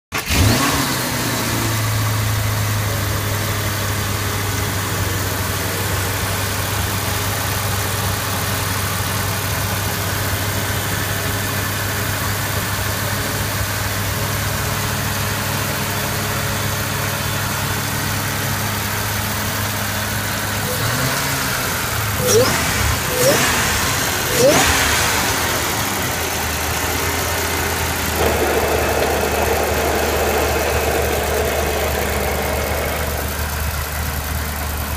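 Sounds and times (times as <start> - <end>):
engine revving flare: 0.2 - 3.3, 20.6 - 34.8
car engine idling: 0.3 - 34.9.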